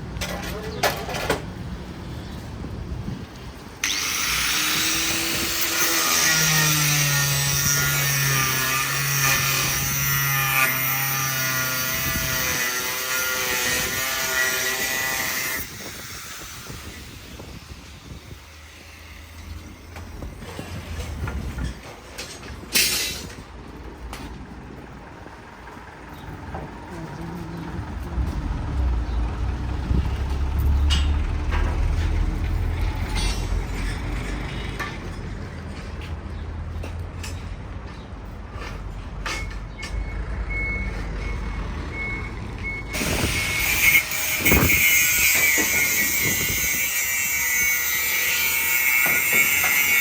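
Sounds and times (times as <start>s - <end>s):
power tool running: 3.8s - 17.4s, 42.9s - 50.0s.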